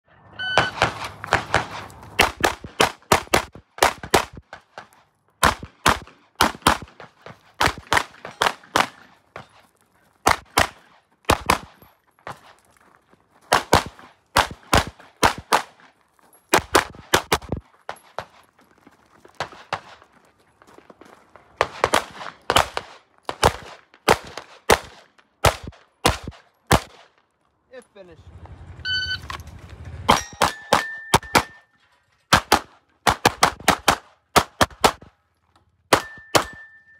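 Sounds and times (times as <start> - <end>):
shot timer beep: 0.4 - 0.8, 28.8 - 29.2
pistol firing rapid shots: 0.6 - 4.5, 5.4 - 9.1, 10.3 - 11.8, 13.5 - 15.8, 21.6 - 27.0, 30.1 - 31.6, 32.3 - 35.1, 35.9 - 36.6.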